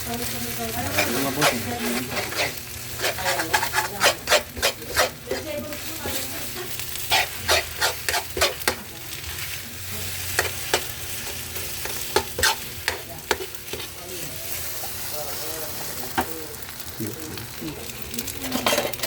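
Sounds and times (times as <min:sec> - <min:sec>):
food sizzling in a pan: 0:00.0 - 0:19.0
spatula scraping a pan: 0:00.6 - 0:15.0, 0:18.4 - 0:19.0.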